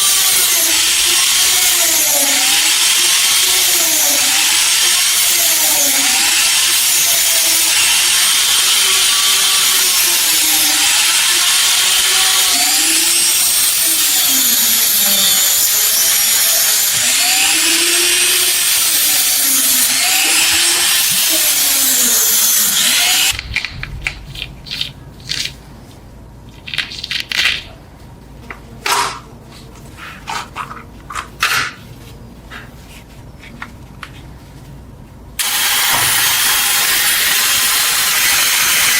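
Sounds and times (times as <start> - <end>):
electric power tool on metal: 0.0 - 23.4, 35.4 - 38.9
loud hiss: 35.4 - 38.9.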